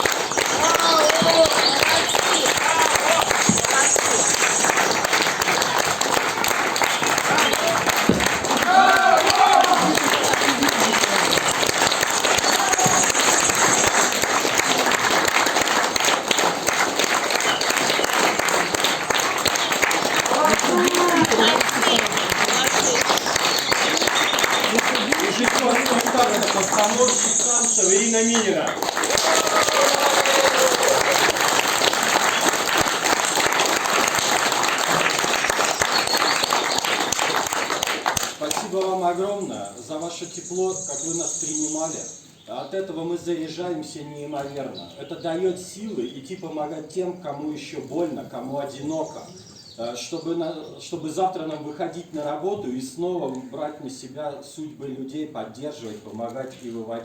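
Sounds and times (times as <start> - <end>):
audience applauding: 0.0 - 39.0.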